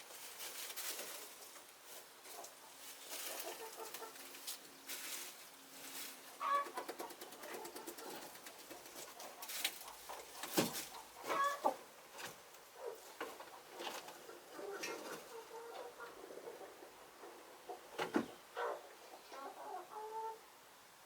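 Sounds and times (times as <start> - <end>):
chickens clucking: 0.4 - 20.5.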